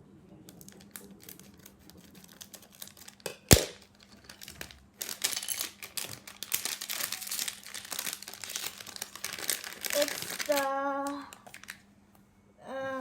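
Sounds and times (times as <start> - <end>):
plastic wrapper crinkling: 0.5 - 11.9
small clicks and rustles: 3.9 - 11.8.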